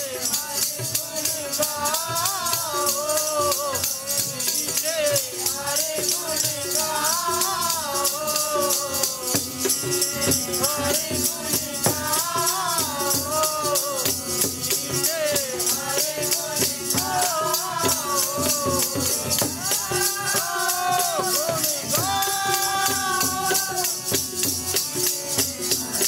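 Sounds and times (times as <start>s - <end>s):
jingling shaken percussion: 0.0s - 26.0s
person singing: 0.0s - 26.0s.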